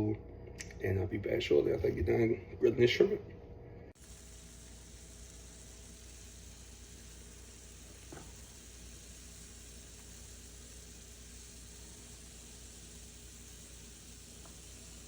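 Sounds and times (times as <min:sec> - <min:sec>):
shrimp sizzling in a pan: 0:04.0 - 0:15.0.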